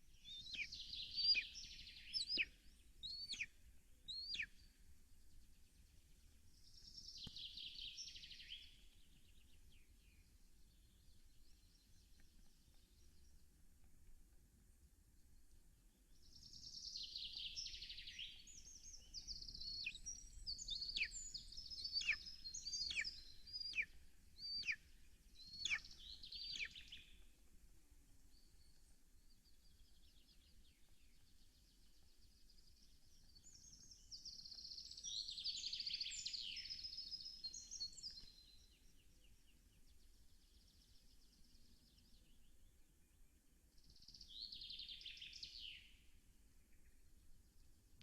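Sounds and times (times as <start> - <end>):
songbird trilling: 0.2 - 3.5, 4.1 - 4.5, 19.2 - 24.8, 25.4 - 27.0.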